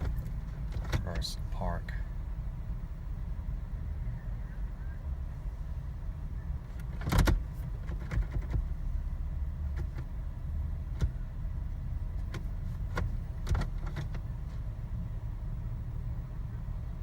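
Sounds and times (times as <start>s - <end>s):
clicks and knocks inside car: 0.0s - 1.7s, 6.6s - 14.8s
car engine idling: 0.0s - 17.0s.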